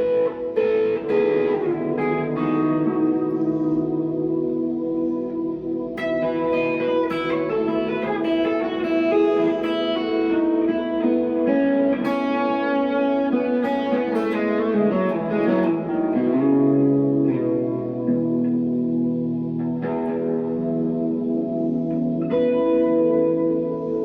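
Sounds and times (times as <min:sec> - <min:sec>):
electric guitar with delay and reverb: 0:00.0 - 0:24.0.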